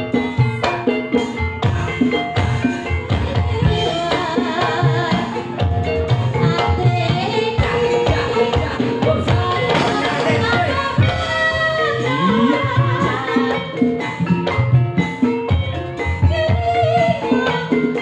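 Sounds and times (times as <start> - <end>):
live dance music over sound system: 0.0 - 18.0
steady drum beat: 0.0 - 18.0.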